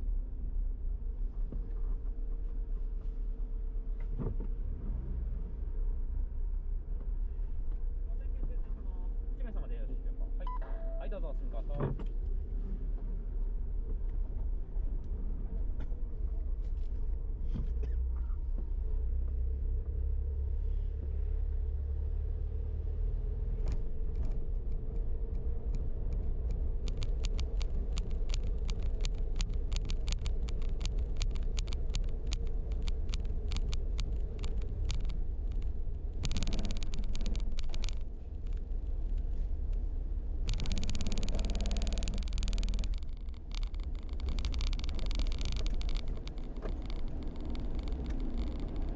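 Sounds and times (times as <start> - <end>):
car rumbling low: 0.0 - 48.9
rapid clicks: 23.7 - 48.9.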